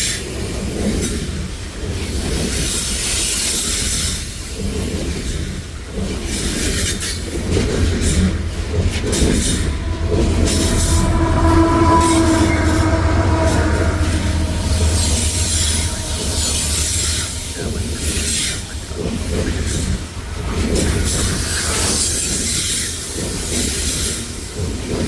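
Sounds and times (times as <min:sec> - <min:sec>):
steel wheels squealing on rail: 0:00.0 - 0:25.0
train wagons rumbling: 0:00.0 - 0:25.0.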